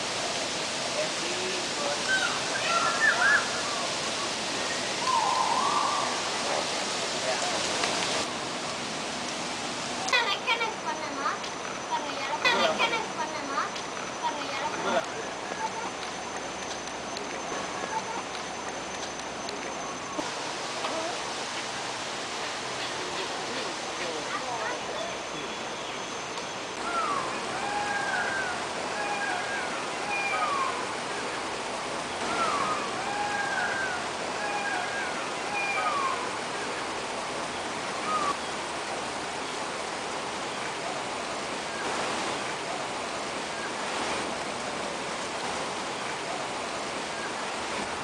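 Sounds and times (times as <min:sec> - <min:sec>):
rush of running water: 0:00.0 - 0:48.0
bird calling: 0:01.3 - 0:08.2, 0:22.8 - 0:31.4, 0:32.0 - 0:36.9, 0:37.5 - 0:38.5.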